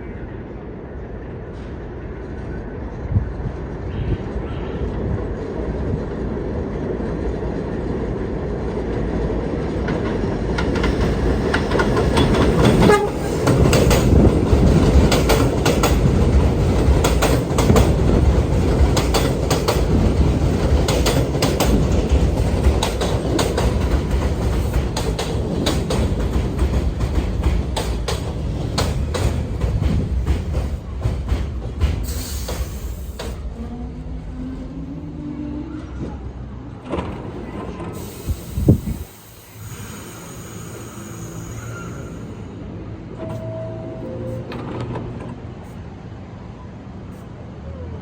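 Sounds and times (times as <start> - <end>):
subway train low rumble: 0.0 - 48.0
wheels clicking over rail joints: 9.7 - 33.5.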